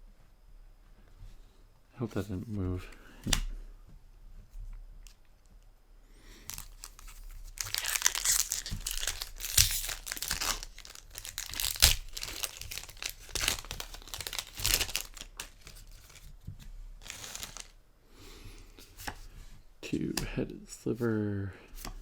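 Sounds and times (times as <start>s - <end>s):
plastic foil wrapper crinkling: 6.4s - 16.4s, 17.0s - 17.8s.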